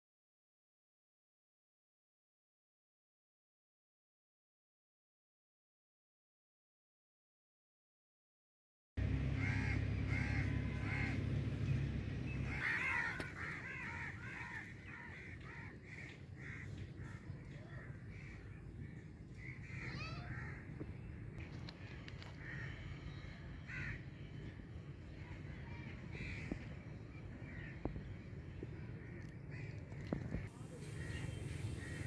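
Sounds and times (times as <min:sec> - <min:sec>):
low rumble: 0:09.0 - 0:15.2
birds calling: 0:09.0 - 0:32.0.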